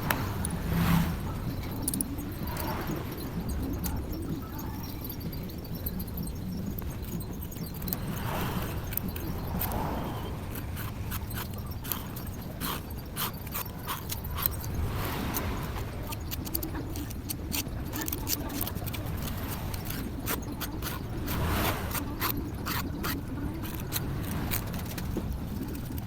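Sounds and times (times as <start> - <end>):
hand tools clicking and scraping: 0.0 - 26.0
steady low hum: 0.0 - 26.0.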